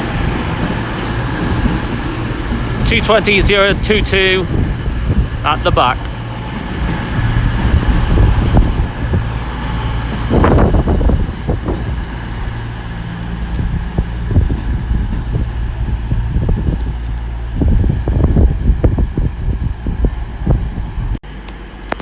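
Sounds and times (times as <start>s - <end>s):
loud rush of noise: 0.0s - 22.0s
train diesel engines droning: 0.0s - 22.0s.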